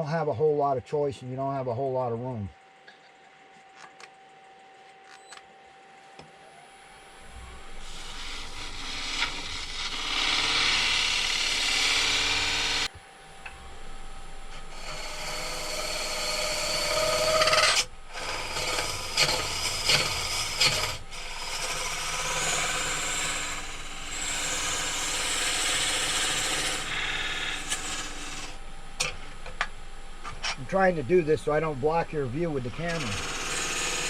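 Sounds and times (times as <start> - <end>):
lathe tool scraping wood: 7.2 - 13.0, 13.6 - 28.6, 30.2 - 34.0.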